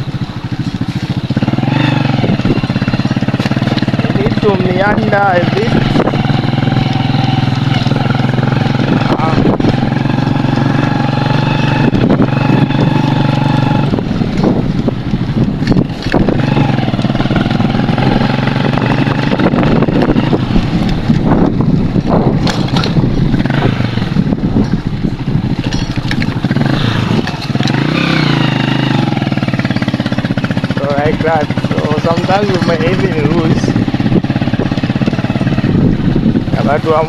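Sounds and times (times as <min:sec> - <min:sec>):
motorcycle engine running: 0:00.0 - 0:37.0
knocks from rough road: 0:19.5 - 0:24.9.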